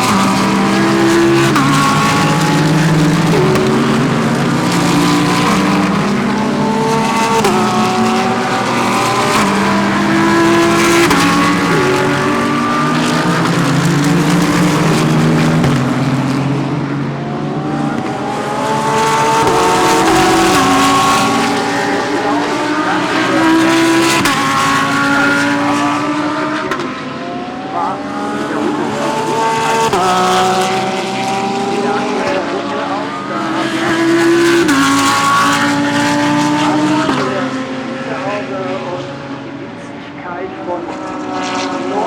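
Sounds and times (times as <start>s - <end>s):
race car engines with gear changes: 0.0s - 42.0s.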